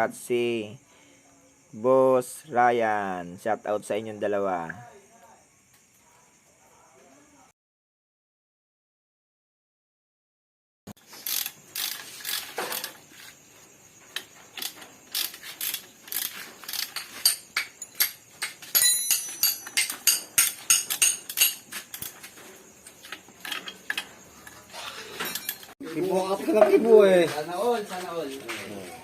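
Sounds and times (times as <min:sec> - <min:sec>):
metal tools clinking and knocking: 0:14.6 - 0:25.8.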